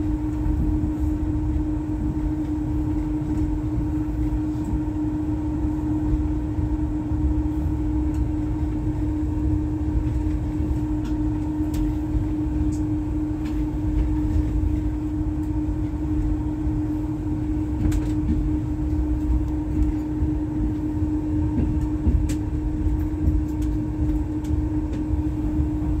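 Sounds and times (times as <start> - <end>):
constant hum: 0.0 - 26.0
train rumble: 0.0 - 26.0.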